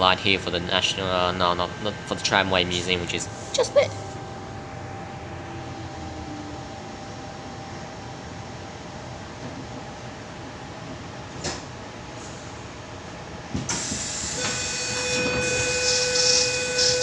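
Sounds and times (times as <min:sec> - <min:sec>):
low steady train hum: 0:00.0 - 0:17.0
steady electronic tone: 0:03.2 - 0:08.8
air hiss of sliding doors: 0:13.6 - 0:14.7.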